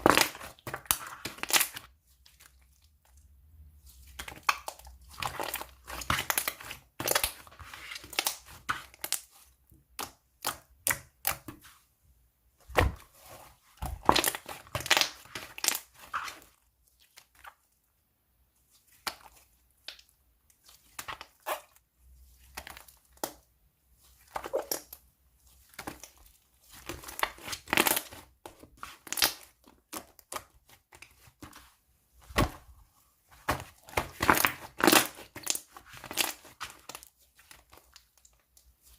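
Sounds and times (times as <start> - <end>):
slime crackling and popping: 0.0 - 1.9, 13.8 - 16.4, 25.7 - 31.3, 33.5 - 38.7.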